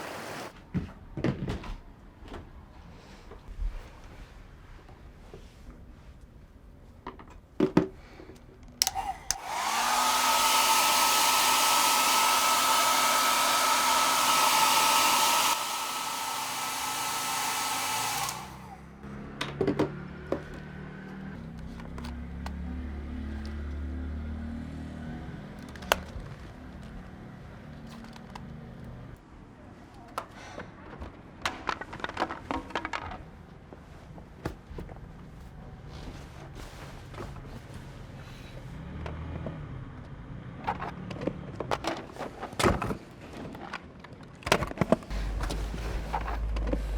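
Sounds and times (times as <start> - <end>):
electric fan motor whining: 8.8 - 18.8.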